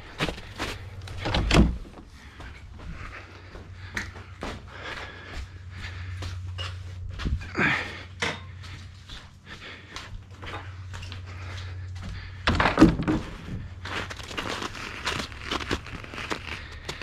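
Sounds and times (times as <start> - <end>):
steady low hum: 0.0 - 17.0
knocks and heavy thuds: 1.1 - 2.0, 12.4 - 13.7.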